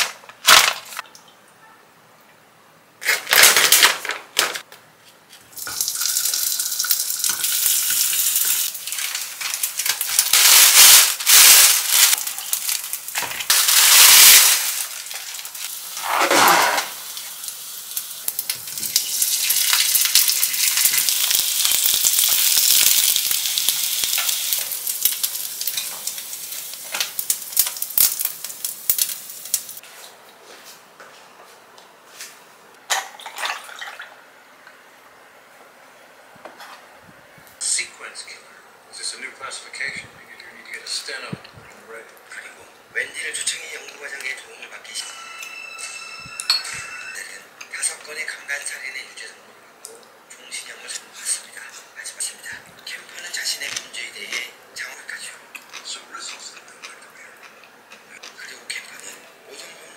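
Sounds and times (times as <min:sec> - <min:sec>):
food sizzling in oil: 0:05.6 - 0:29.8.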